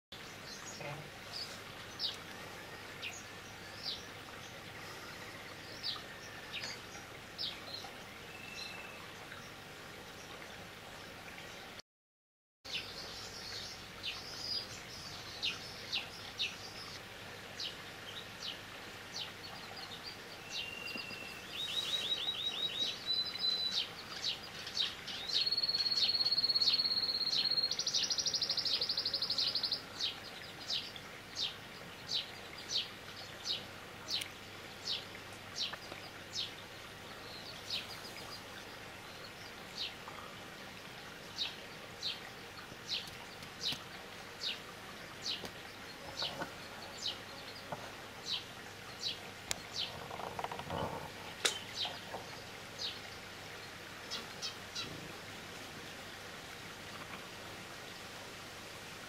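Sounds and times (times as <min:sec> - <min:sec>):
songbird chirping: 0:00.2 - 0:11.7, 0:12.7 - 0:55.1.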